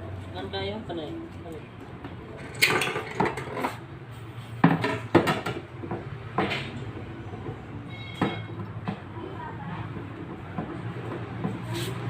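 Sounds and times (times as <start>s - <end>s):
metal tools clinking and knocking: 2.3s - 3.8s.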